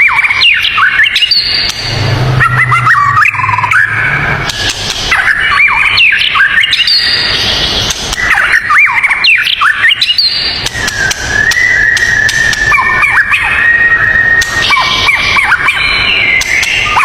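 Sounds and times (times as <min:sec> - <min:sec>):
songbirds singing: 0:00.0 - 0:17.0
low hum: 0:01.2 - 0:06.3.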